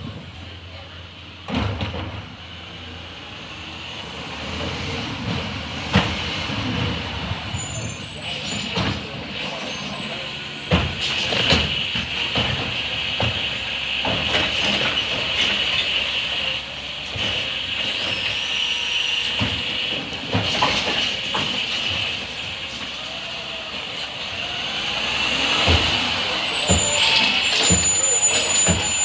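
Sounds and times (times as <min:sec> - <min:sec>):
garbage truck hiss: 0:05.5 - 0:29.0
knocks and clattering: 0:08.4 - 0:16.0, 0:25.5 - 0:29.0.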